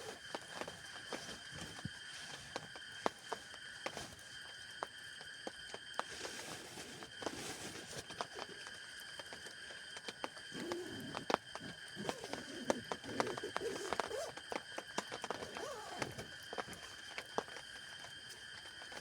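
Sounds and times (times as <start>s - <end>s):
low wavering calls: 10.5s - 14.3s
drops tapping on tent: 10.5s - 16.7s.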